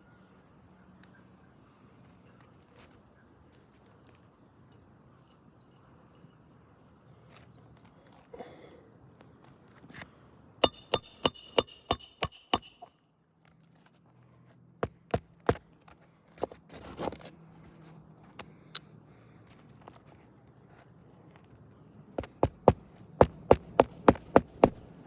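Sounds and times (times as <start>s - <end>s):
hammer striking roofing nails: 10.6s - 12.8s, 14.8s - 15.6s, 22.2s - 25.0s
light hammer taps: 22.2s - 24.9s.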